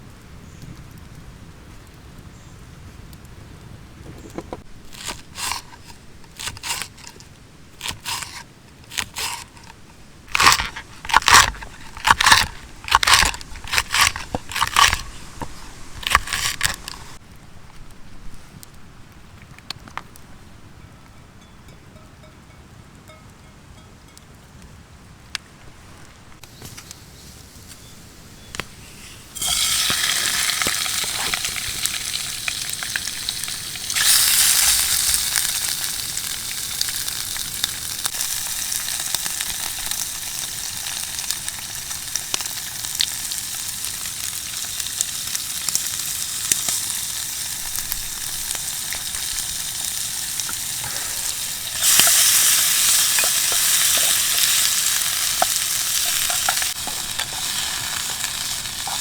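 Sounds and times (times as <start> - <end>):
food sizzling in frying pan: 29.4 - 59.0.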